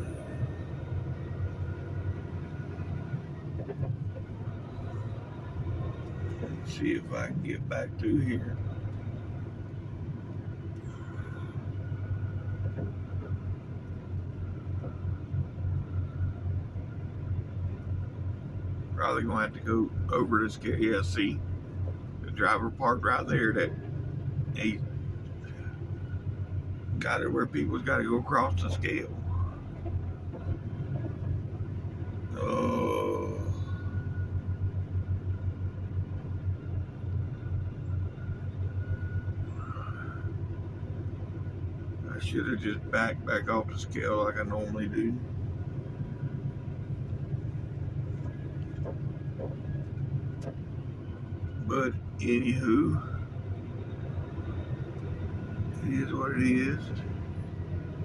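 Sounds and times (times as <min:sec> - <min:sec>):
diesel truck engine rumbling: 0:00.0 - 0:58.0
faint high whine: 0:32.1 - 0:58.0.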